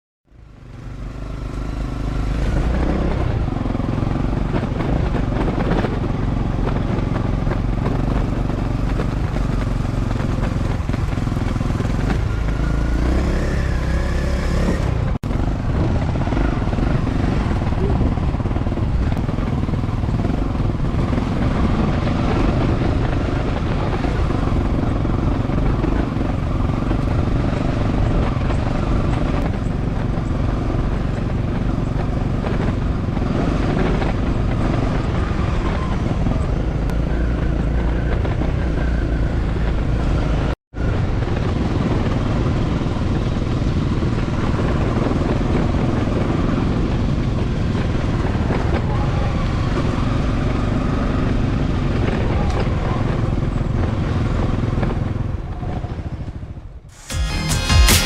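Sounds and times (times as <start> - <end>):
motorcycle engine running: 0.3 - 58.0
rushing noise: 56.9 - 58.0.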